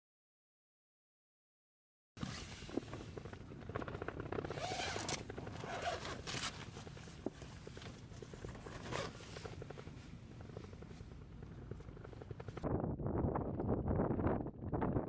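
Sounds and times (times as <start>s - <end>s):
zipper rasping: 2.2s - 3.2s, 4.3s - 12.6s
zipper teeth ticking: 3.6s - 12.6s.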